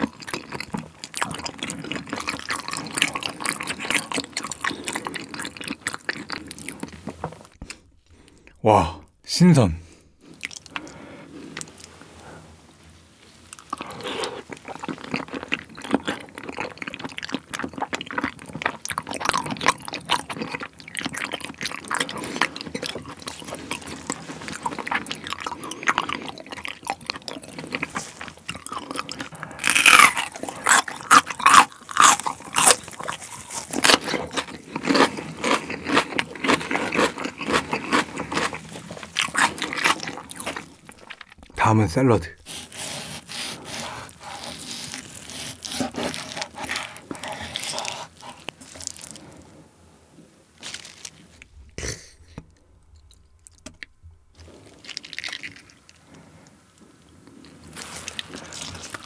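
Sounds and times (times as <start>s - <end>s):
close chewing with wet mouth sounds: 0.0s - 8.5s, 10.1s - 41.6s, 42.4s - 49.6s, 50.6s - 59.0s.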